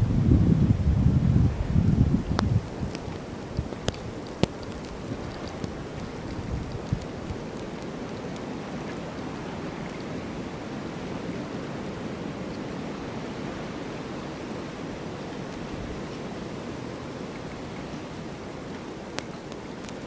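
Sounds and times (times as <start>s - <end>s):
snowstorm wind rushing: 0.0s - 3.9s.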